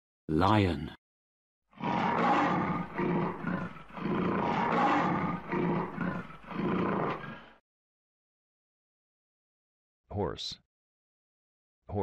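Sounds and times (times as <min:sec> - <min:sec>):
lion roaring: 0:01.7 - 0:07.6.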